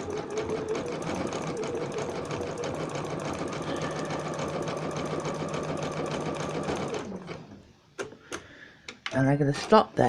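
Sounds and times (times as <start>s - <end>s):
sewing machine motor hum: 0.0s - 7.6s.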